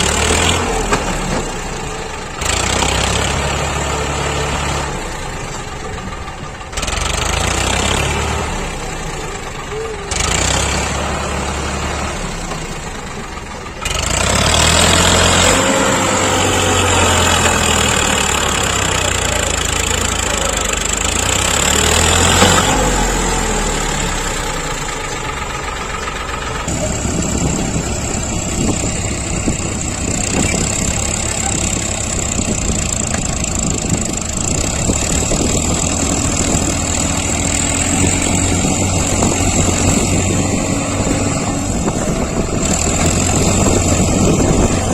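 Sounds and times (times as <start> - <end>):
diesel tractor engine under load: 0.0 - 44.9.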